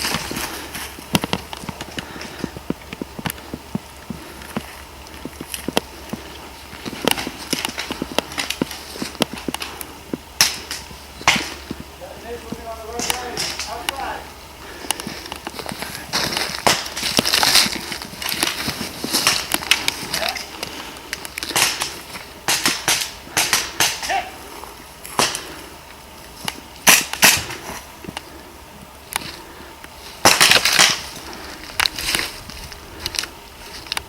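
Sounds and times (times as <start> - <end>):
airsoft guns firing: 10.4 - 11.8, 12.6 - 14.2, 16.1 - 17.7, 21.5 - 24.4, 25.1 - 25.6, 26.8 - 27.6, 30.2 - 31.1.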